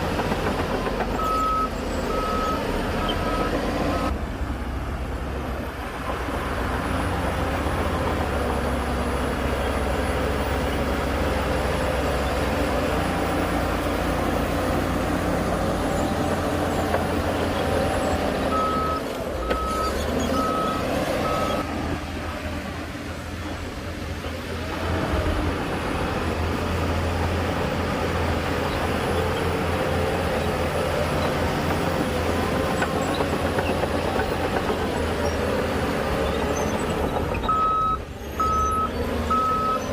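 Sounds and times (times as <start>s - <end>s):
diesel earthmoving machinery running: 0.0s - 39.9s
backup alarm beeps: 37.5s - 39.8s.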